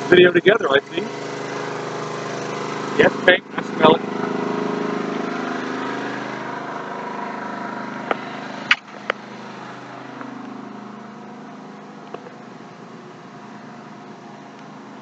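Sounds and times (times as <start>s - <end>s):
generator running: 0.0s - 15.0s
sharp clicks or knocks: 8.1s - 9.2s.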